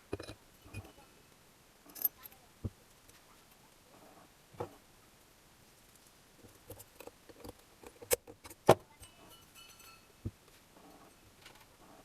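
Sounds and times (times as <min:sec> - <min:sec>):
metallic ring: 0:09.0 - 0:10.2.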